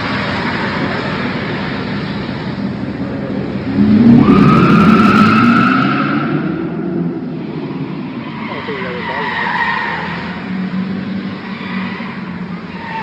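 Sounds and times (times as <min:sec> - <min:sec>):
car tires squealing: 0:03.8 - 0:13.0.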